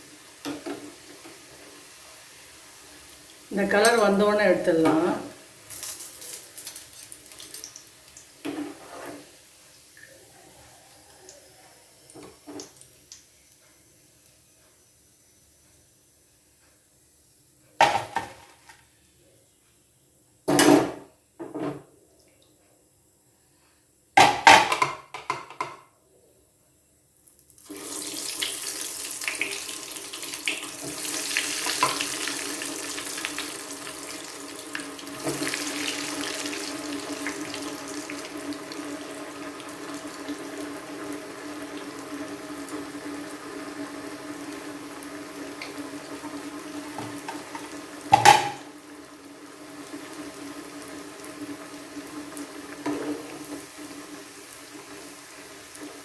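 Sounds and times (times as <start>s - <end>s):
bread frying in hot oil: 0.0s - 17.0s, 27.1s - 56.0s
utensil clattering against pan: 48.1s - 48.6s.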